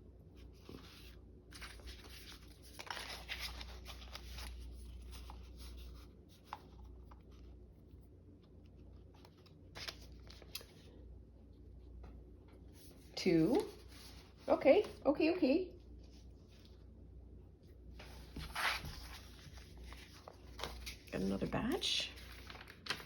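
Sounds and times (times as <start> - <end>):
paper rustling and sliding: 0.5 - 6.8, 18.0 - 21.1, 22.1 - 23.0.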